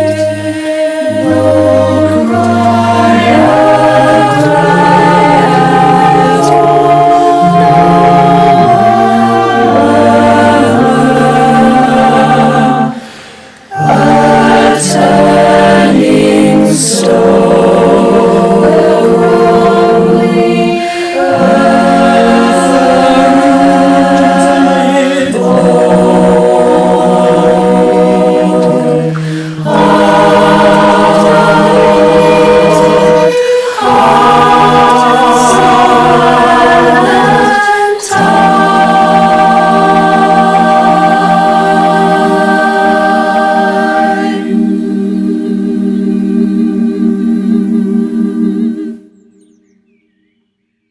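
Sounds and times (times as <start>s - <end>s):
a cappella choir singing: 0.0s - 49.6s
singers breathing: 12.9s - 14.5s, 20.6s - 21.8s, 28.3s - 34.8s.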